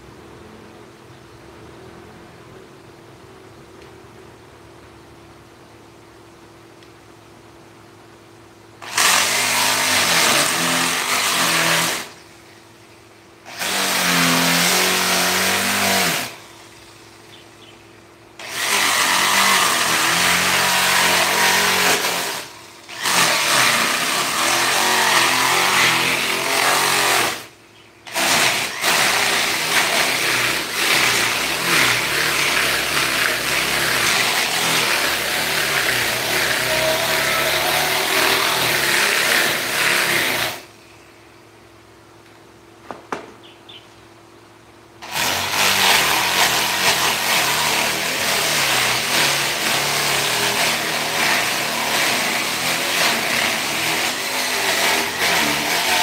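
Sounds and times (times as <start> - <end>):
power tool grinding wood: 8.8 - 12.8, 13.4 - 17.7, 18.4 - 40.8, 45.0 - 56.0.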